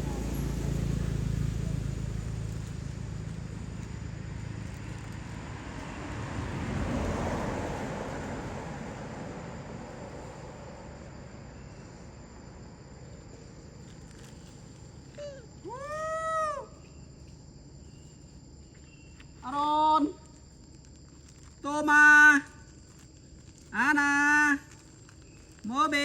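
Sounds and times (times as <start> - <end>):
vehicle passing by: 0.0 - 14.5
high insect drone: 0.0 - 26.0.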